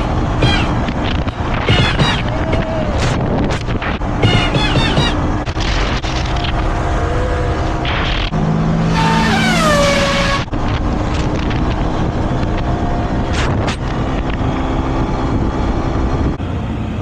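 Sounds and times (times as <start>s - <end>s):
motorcycle engine running: 0.0s - 2.8s, 3.5s - 6.9s
wind rushing over microphone: 0.0s - 8.4s, 9.6s - 17.0s.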